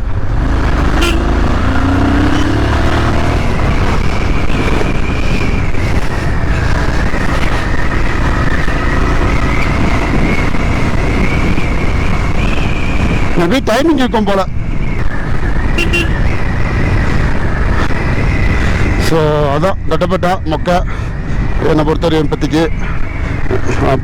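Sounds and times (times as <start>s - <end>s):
motorcycle engine accelerating: 0.0s - 13.4s
wind and road noise: 0.0s - 24.0s.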